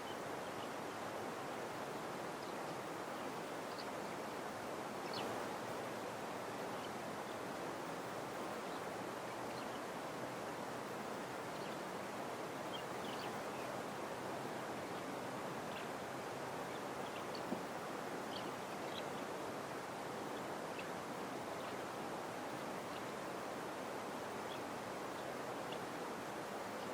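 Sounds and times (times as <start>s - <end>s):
faint bird chirps: 0.0s - 0.8s, 2.4s - 4.0s, 5.0s - 5.4s, 11.5s - 11.9s, 12.7s - 13.8s, 16.6s - 17.6s, 18.2s - 19.3s, 24.4s - 25.9s
steady white-noise hiss: 0.0s - 26.9s.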